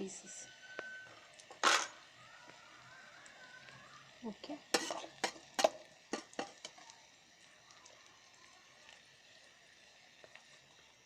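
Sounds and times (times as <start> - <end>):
faint frying hiss: 0.0 - 11.0
spoon stirring food in a pot: 4.6 - 7.0.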